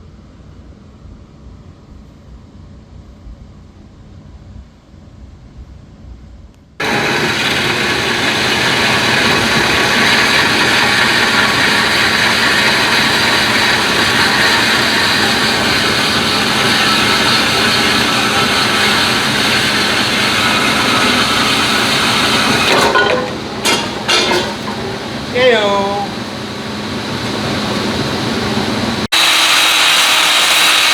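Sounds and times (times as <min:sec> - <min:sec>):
power tool running: 0:06.8 - 0:30.9.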